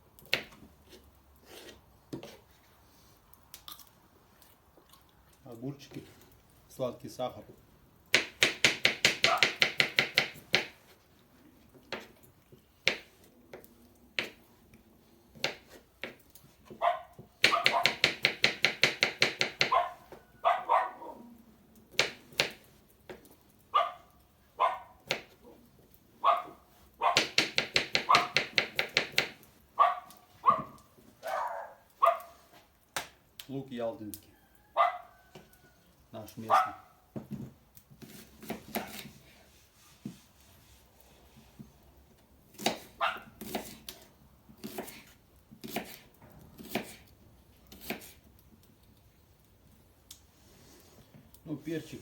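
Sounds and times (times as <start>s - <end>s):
knife chopping on cutting board: 8.2s - 10.8s, 17.4s - 19.8s, 27.2s - 29.4s, 38.0s - 39.2s, 42.5s - 46.0s, 46.6s - 47.0s, 47.7s - 48.2s
dog barking: 9.2s - 9.6s, 16.8s - 18.0s, 19.6s - 21.3s, 23.7s - 25.0s, 26.2s - 27.4s, 28.0s - 28.4s, 29.8s - 32.4s, 34.7s - 35.3s, 36.4s - 37.0s, 43.0s - 43.3s.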